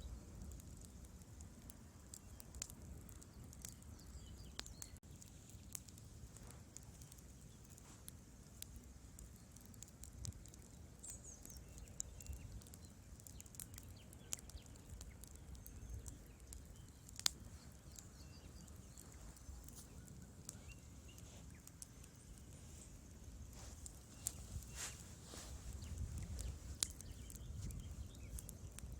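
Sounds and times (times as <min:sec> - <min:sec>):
low rumble of flame: 0:00.0 - 0:28.9
wood fire crackling: 0:00.0 - 0:28.9.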